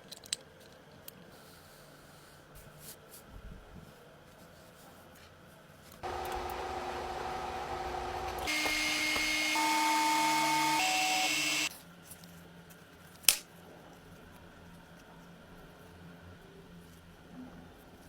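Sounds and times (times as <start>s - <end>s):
small electric power tool whining: 6.0s - 11.7s.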